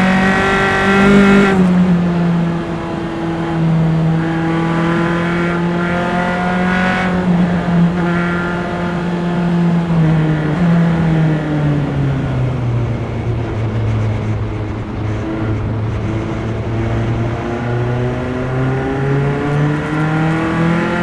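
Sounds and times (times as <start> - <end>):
race car engine: 0.0 - 21.0.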